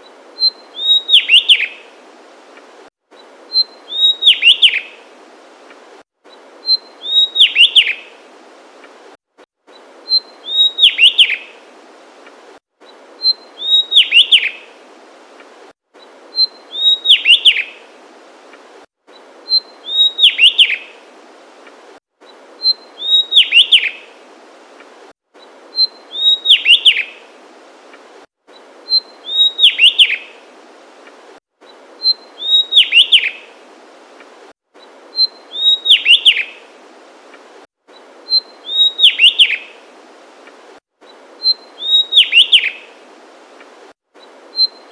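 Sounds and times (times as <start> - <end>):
background hiss: 0.0 - 44.9
bird singing: 0.4 - 1.8, 3.2 - 5.0, 6.6 - 8.0, 9.7 - 11.5, 13.2 - 14.6, 16.3 - 17.8, 19.1 - 20.9, 22.6 - 24.0, 25.7 - 27.2, 28.5 - 30.3, 32.0 - 33.4, 35.1 - 36.6, 38.3 - 39.8, 41.4 - 42.9, 44.5 - 44.9.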